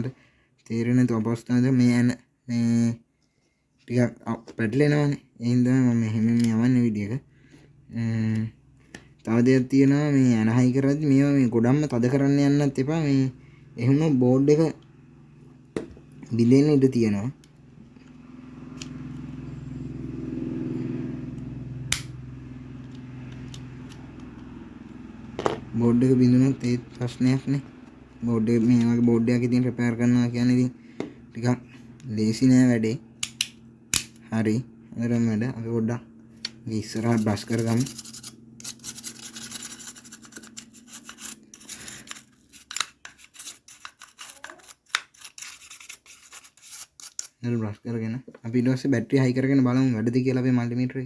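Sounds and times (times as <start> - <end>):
low motor hum: 6.8 - 42.6
sharp click: 21.9 - 22.1
brush scrubbing circuit board: 36.8 - 47.2.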